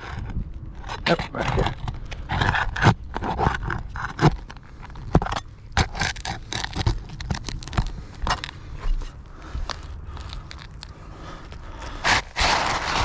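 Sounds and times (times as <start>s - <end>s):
tool scraping under shingles: 0.0s - 10.7s, 11.6s - 13.0s.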